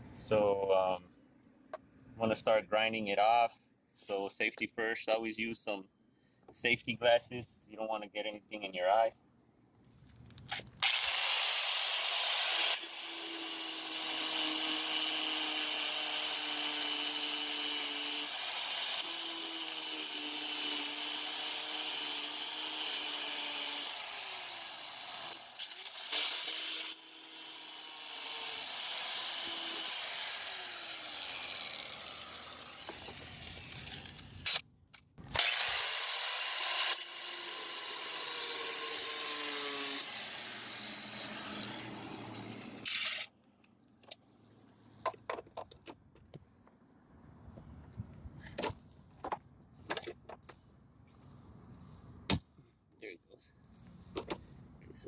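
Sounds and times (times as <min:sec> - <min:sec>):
grinder cutting metal: 0:10.8 - 0:34.6, 0:35.3 - 0:43.3.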